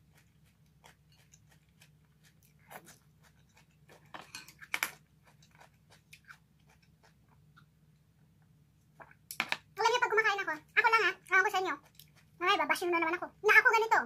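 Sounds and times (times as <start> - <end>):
chewing with mouth clicks: 0.0 - 7.7, 11.2 - 12.4.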